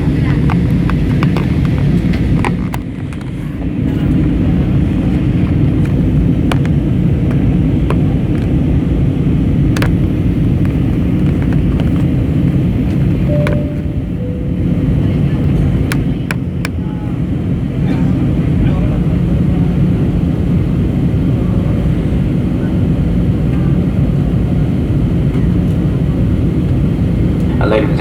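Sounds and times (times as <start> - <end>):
airplane cabin engine rumble: 0.0 - 28.0
brief steady tone: 13.3 - 15.8.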